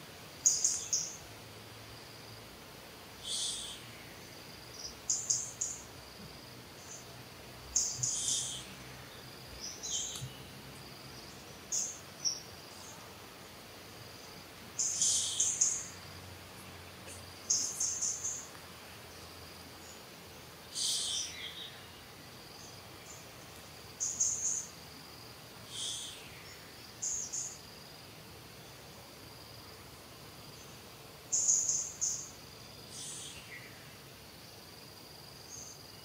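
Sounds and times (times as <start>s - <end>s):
faint steady hiss: 0.0s - 36.0s
birds chirping: 3.2s - 13.2s, 14.0s - 24.8s.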